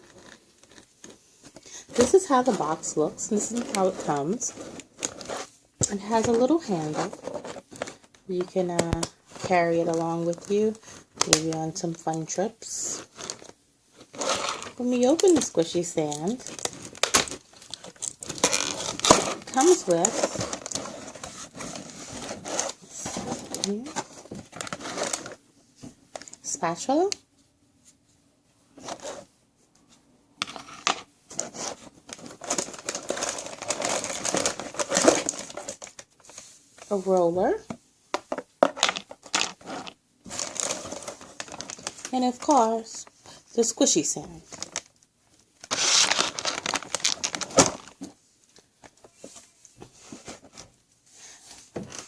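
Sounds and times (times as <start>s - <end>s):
packaging crinkling: 13.0s - 25.4s, 30.4s - 36.4s, 38.3s - 42.9s, 44.4s - 48.1s.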